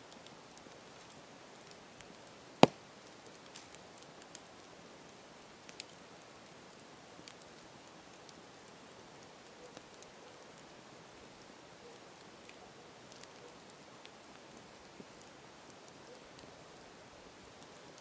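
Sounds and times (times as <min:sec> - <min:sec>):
campfire crackling and popping: 0:00.1 - 0:18.0.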